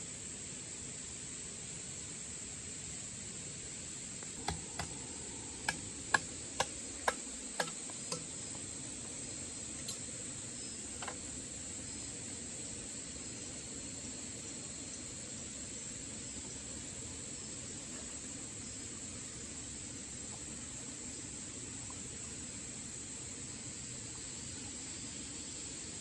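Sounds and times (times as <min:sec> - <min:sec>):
sharp knocks: 0:04.4 - 0:08.3.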